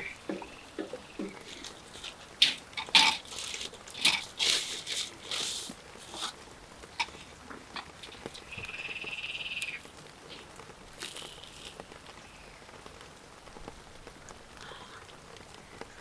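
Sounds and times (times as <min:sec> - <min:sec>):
sharp rustling: 0:01.2 - 0:08.6
frog trilling: 0:07.8 - 0:09.9.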